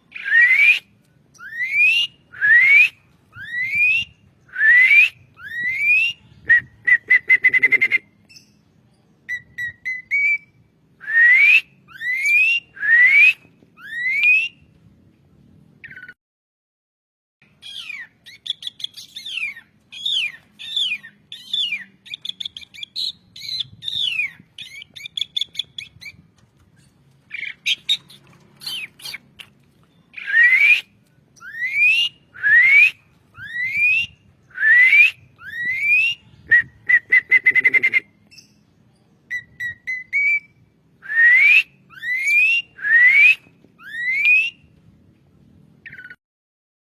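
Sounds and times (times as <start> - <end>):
starling singing whistles: 0.1 - 8.6, 9.3 - 14.6, 30.1 - 38.6, 39.3 - 44.6.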